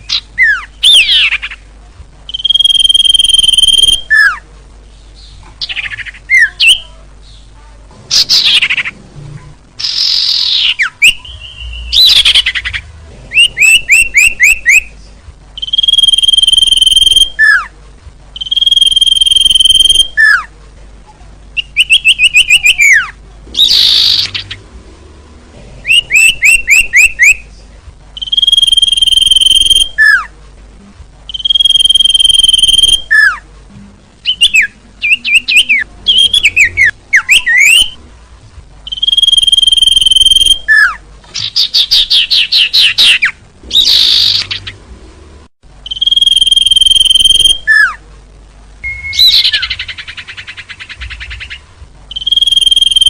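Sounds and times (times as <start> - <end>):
bird whistled notes and chirps: 0.0 - 1.5, 2.3 - 4.4, 9.8 - 14.9, 15.6 - 17.7, 18.4 - 20.5, 21.6 - 24.6, 25.8 - 27.4, 28.2 - 30.3, 31.3 - 33.4, 34.2 - 38.0, 38.9 - 44.8, 45.8 - 48.0, 48.8 - 53.0.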